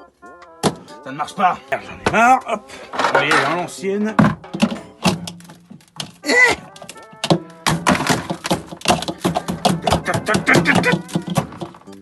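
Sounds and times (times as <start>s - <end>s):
sharp knocks and thuds: 0.6s - 0.8s, 4.1s - 12.0s
brief vocal cry: 6.2s - 6.7s.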